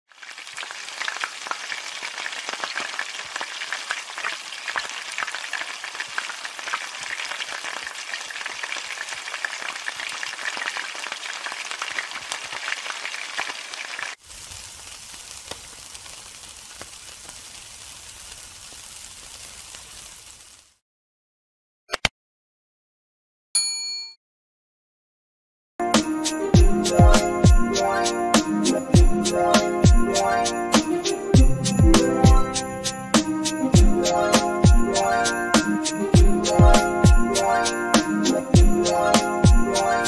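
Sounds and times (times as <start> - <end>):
food frying in a wok: 0.1 - 20.8.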